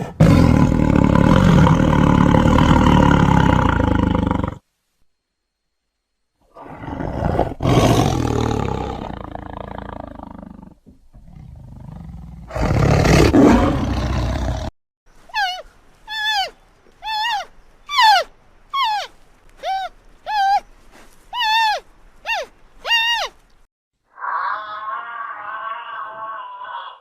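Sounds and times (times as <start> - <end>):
large animal roaring: 0.2 - 4.6, 6.5 - 14.7, 24.1 - 27.0
falling whistled calls: 15.3 - 23.4.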